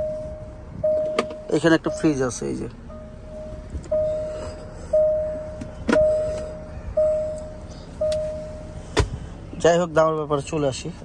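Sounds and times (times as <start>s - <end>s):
car warning chime bong: 0.0s - 8.8s.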